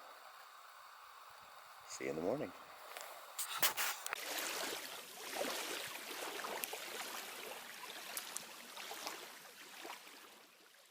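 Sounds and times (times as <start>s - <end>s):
water trickling and lapping: 0.0s - 10.9s
small water drips: 4.0s - 10.8s.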